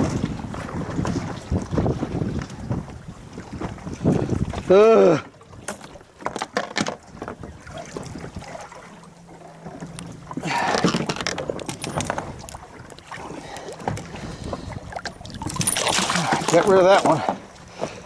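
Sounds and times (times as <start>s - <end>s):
water noise: 0.0s - 18.0s
wind: 0.0s - 18.0s
fishing gear knocking: 9.9s - 12.6s.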